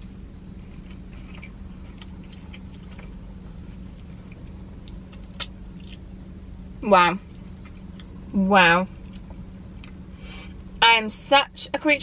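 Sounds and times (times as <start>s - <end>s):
steady low hum: 0.0s - 12.0s
person chewing: 0.6s - 6.0s, 9.0s - 10.1s.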